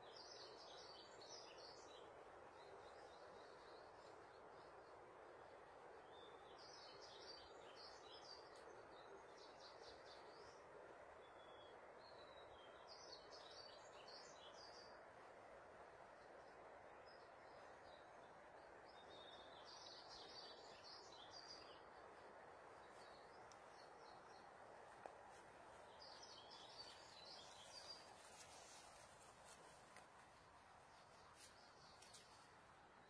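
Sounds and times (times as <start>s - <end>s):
steady hiss: 0.0s - 33.0s
bird chirping: 16.2s - 30.0s.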